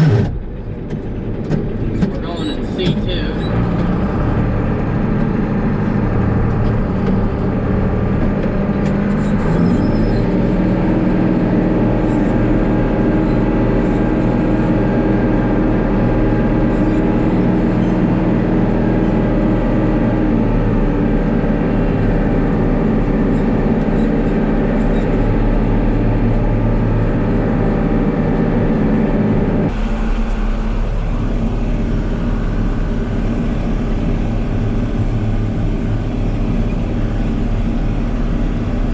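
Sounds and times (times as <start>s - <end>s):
farm vehicle engine running: 0.0s - 38.9s.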